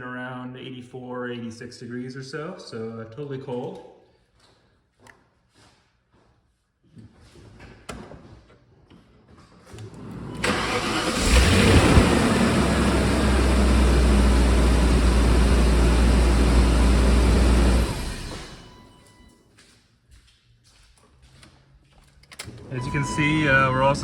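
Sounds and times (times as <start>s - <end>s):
car engine starting and idling: 10.0s - 19.3s, 22.7s - 24.0s.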